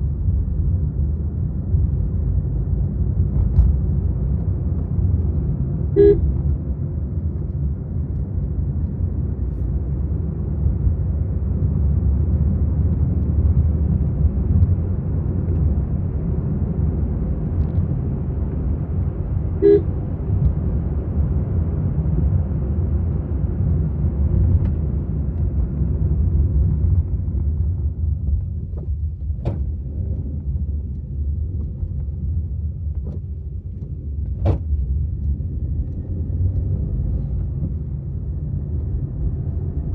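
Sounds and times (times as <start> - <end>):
car engine and road rumble: 0.0 - 39.9
car horn toots: 6.0 - 6.3, 19.6 - 19.9.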